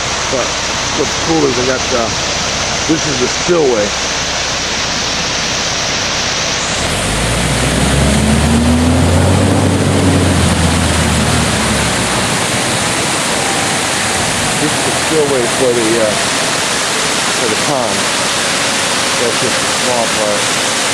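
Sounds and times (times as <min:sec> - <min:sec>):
water pouring over spillway: 0:00.0 - 0:20.9
low rumble: 0:06.8 - 0:15.6.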